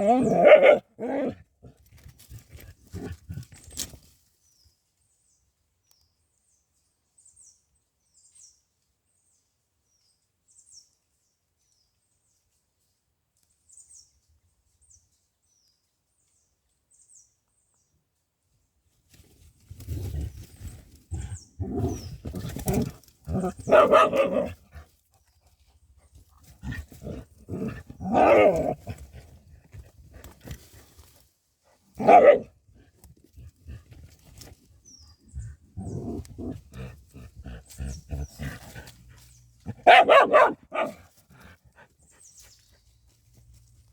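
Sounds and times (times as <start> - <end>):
dog barking and growling: 0.0 - 1.8, 21.1 - 24.9, 26.6 - 29.2, 32.0 - 32.9, 35.4 - 41.6.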